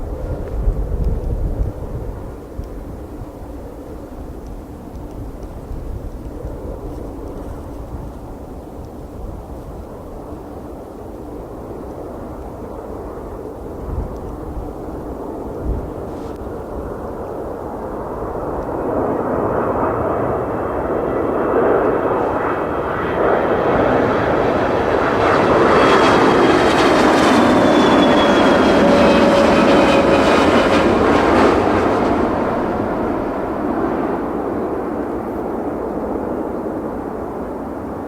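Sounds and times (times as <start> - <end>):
jet airliner engines whining: 10.1 - 38.0.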